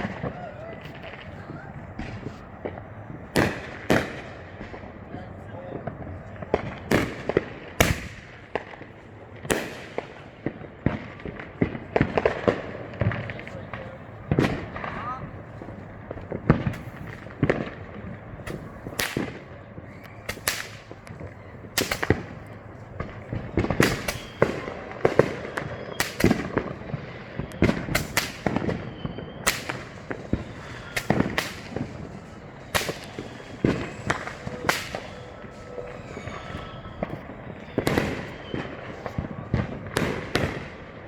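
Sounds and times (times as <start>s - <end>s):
fireworks bangs and crackles: 0.0s - 41.0s.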